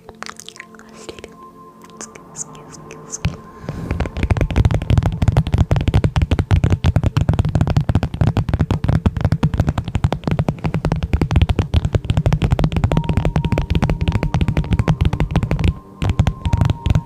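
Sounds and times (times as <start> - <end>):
heavy low rumble: 1.0 - 6.6
rapid sharp clicks and crackles: 3.9 - 17.0.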